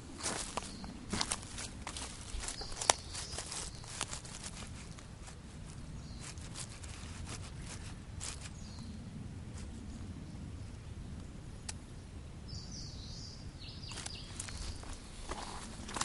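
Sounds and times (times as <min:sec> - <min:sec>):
footsteps crunching on a trail: 0:00.0 - 0:08.9, 0:13.8 - 0:16.0
low outdoor rumble: 0:00.0 - 0:16.0
bird chirps: 0:12.5 - 0:14.8.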